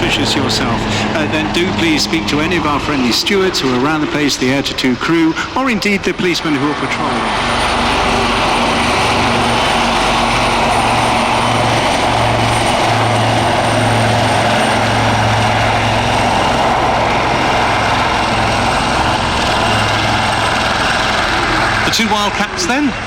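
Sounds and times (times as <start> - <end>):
helicopters hovering: 0.0 - 23.0.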